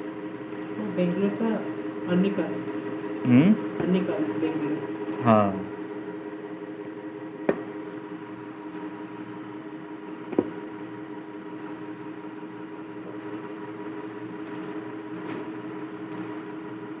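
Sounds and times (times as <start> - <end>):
machine hum with held tones: 3.2 - 3.7.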